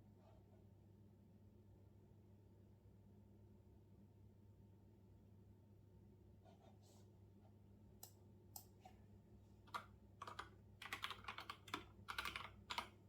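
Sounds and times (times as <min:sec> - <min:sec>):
typing on keyboard: 0:09.7 - 0:13.0.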